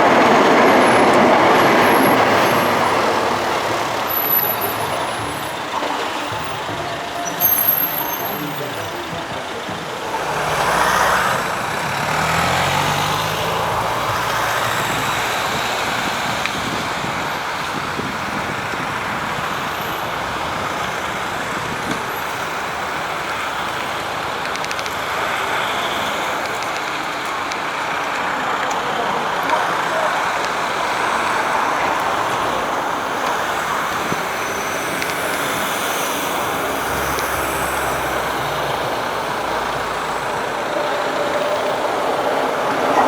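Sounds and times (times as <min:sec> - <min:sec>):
metro train motor hum and rumble: 0:00.0 - 0:12.4, 0:25.4 - 0:43.0.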